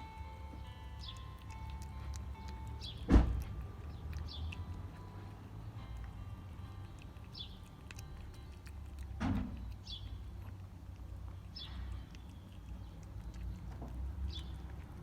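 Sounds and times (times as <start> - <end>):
small bird chirping: 0.0 - 15.0.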